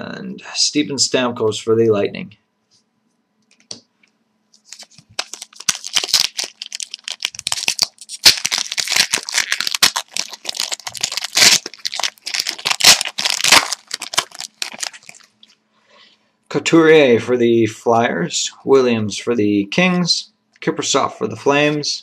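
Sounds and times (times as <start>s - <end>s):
wrapper crinkling and tearing: 4.6s - 15.6s.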